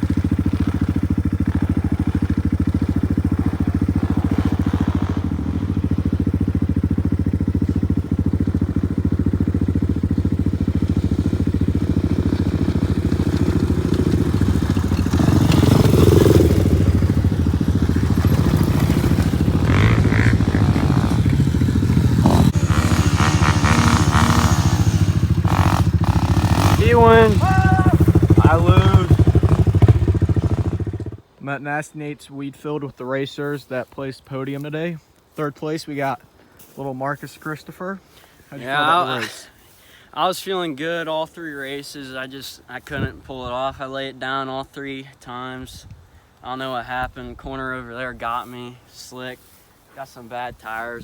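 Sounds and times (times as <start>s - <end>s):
single-cylinder engine running: 0.0s - 31.2s.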